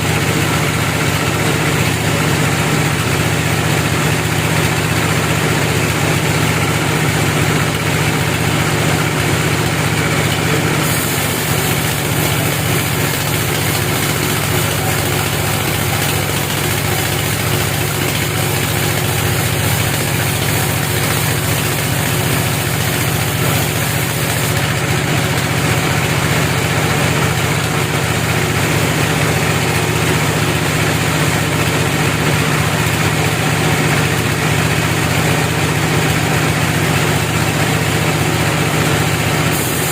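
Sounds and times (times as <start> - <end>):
heavy engine humming with hiss: 0.0 - 39.9.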